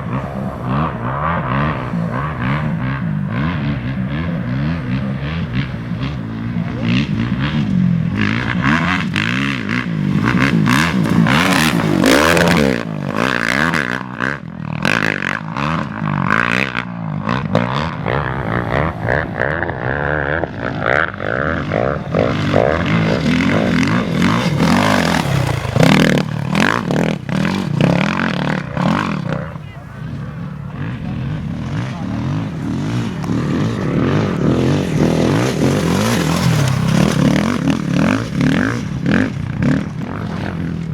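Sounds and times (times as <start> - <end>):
motorcycle and quad engines revving: 0.0 - 40.9.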